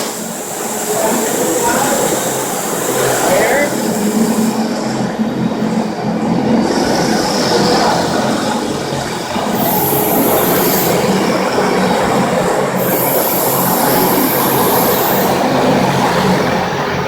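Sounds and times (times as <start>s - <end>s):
floor grinder grinding concrete: 0.0s - 17.0s
high hiss: 0.0s - 17.0s.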